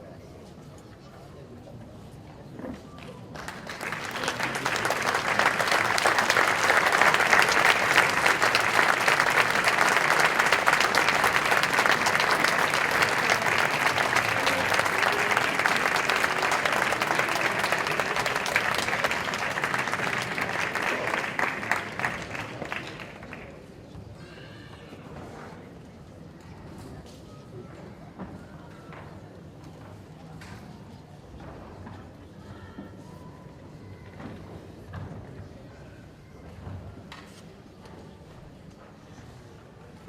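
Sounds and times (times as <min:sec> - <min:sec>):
audience applauding: 0:03.4 - 0:23.6.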